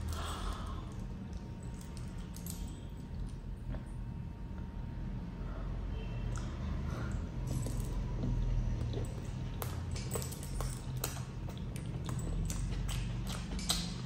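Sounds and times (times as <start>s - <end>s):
steady low hum: 0.0s - 14.0s
chewing crunchy food: 8.2s - 14.0s.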